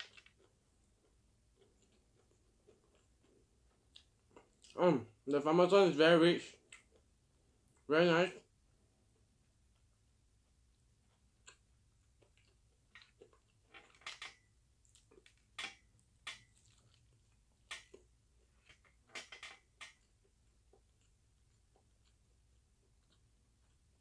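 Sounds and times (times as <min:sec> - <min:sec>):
crunching fried chicken: 0:11.0 - 0:19.0.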